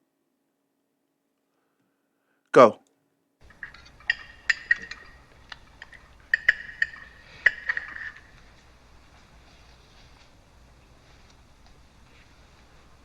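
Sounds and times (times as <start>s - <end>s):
cutlery clinking on plates: 3.5s - 9.4s.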